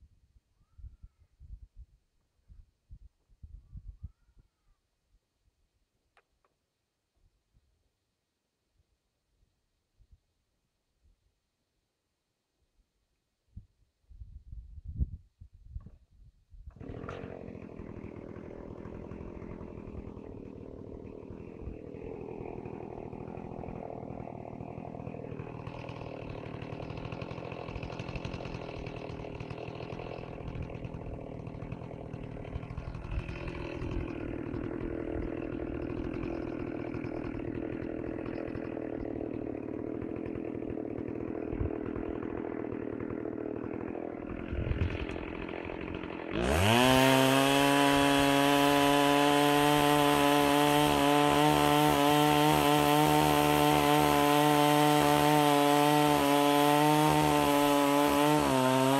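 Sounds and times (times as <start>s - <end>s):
chainsaw cutting wood: 16.7s - 58.9s.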